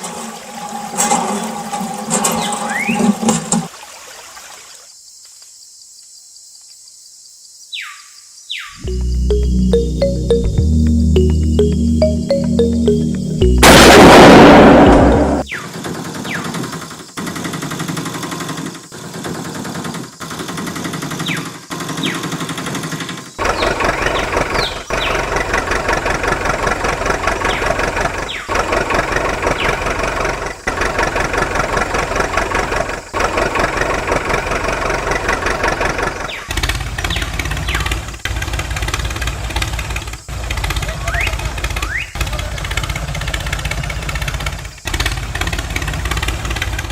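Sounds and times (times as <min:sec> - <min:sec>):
engine running: 0:08.9 - 0:15.5, 0:23.4 - 0:46.9.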